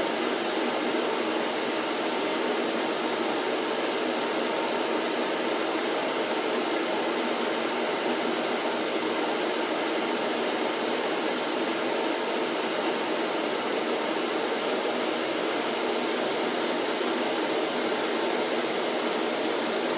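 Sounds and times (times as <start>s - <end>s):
vacuum cleaner running: 0.0s - 19.9s.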